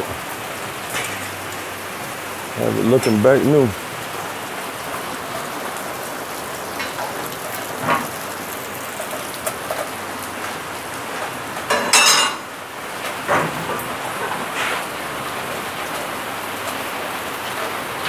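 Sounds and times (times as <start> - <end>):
rain-like hiss: 0.0 - 18.0
ringing metallic clank: 11.7 - 12.5.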